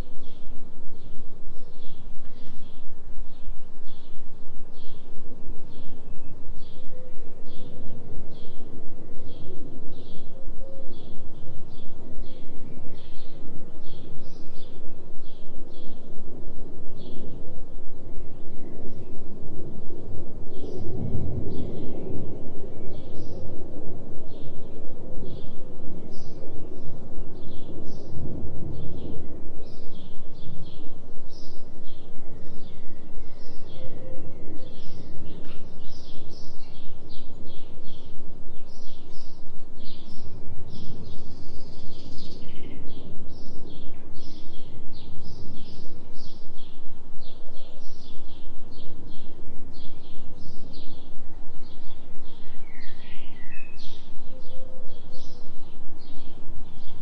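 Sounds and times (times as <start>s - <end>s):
low binaural tone hum: 0.0s - 57.0s
low rushing noise: 0.0s - 57.0s
small birds chirping: 18.2s - 57.0s.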